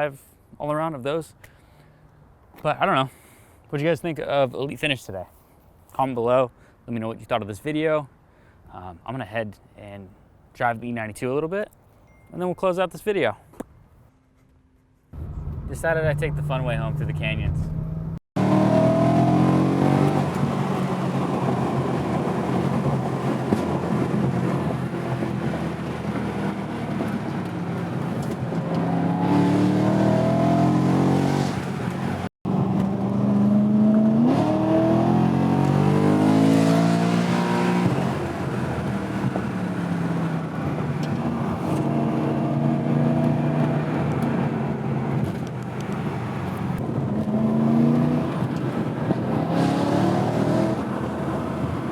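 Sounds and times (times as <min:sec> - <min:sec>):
car engine revving: 0:15.2 - 0:51.9.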